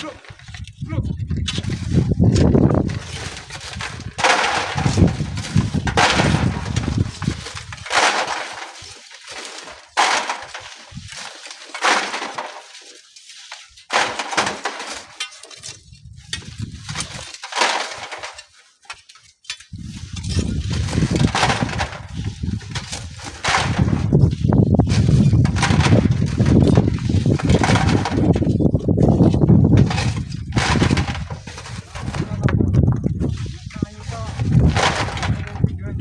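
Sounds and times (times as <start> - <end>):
wind buffeting microphone: 0.4 - 7.9, 15.8 - 17.2, 19.7 - 36.0.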